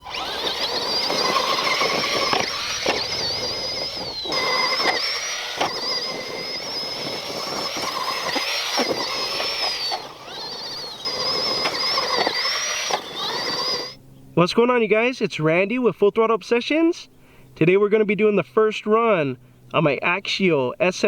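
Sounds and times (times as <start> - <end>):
toy truck motor whining: 0.0 - 14.0.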